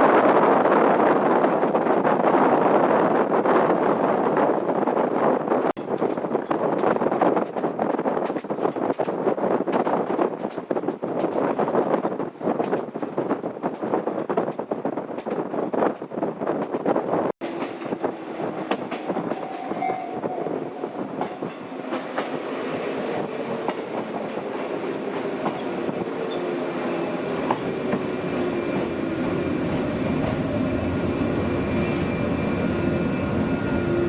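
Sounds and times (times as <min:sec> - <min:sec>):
electric train running on rails: 0:00.0 - 0:34.0
faint train whine: 0:17.5 - 0:34.0.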